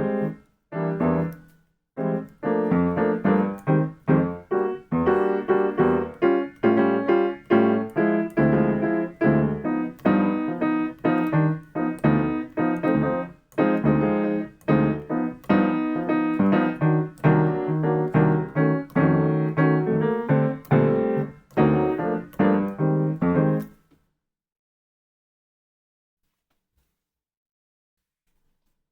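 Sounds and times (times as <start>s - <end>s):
piano jazz chords: 0.0s - 23.8s.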